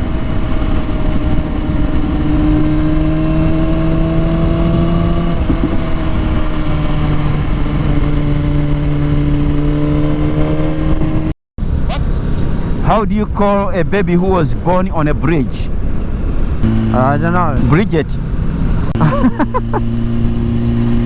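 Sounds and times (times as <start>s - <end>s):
motorcycle engine cruising: 0.0s - 12.5s, 16.0s - 21.0s
low rushing noise: 15.7s - 19.0s.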